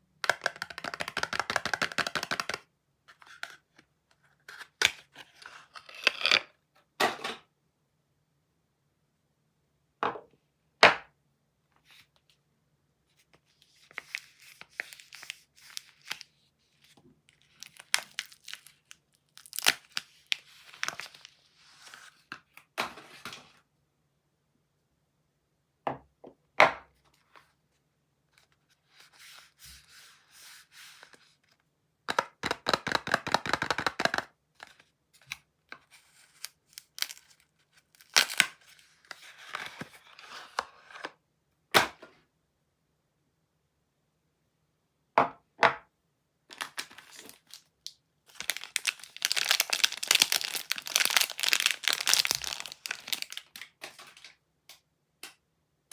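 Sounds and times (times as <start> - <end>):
wrappers tearing and crinkling: 17.4 - 21.2, 36.4 - 37.4, 38.0 - 38.5, 46.5 - 47.7, 48.3 - 54.2.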